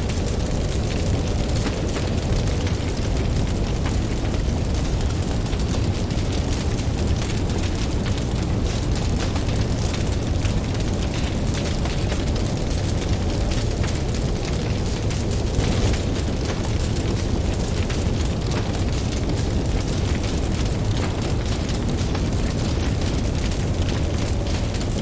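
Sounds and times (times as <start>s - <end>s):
campfire crackling and popping: 0.0s - 25.0s.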